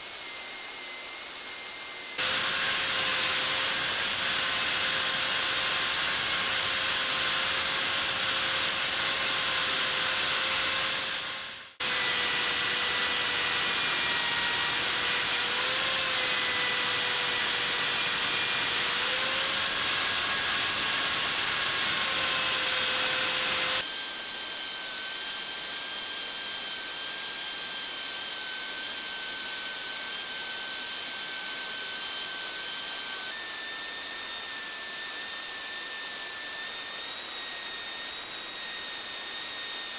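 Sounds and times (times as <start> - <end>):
electric power tool motor whine: 0.0 - 39.9.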